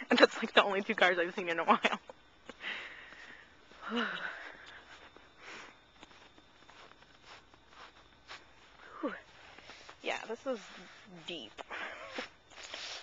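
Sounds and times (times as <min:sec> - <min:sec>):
footsteps crunching through snow: 0:04.8 - 0:13.0.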